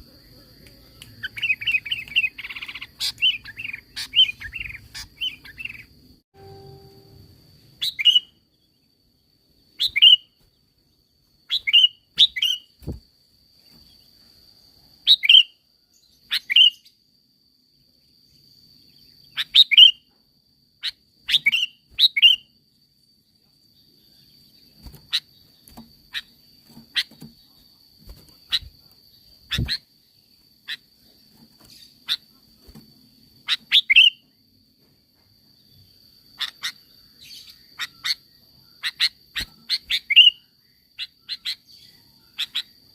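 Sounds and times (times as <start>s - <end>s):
faint high-pitched hiss: 0.0s - 8.4s
bird chirping: 0.0s - 13.0s, 15.0s - 17.0s, 17.8s - 20.2s, 20.8s - 34.4s, 35.6s - 42.9s.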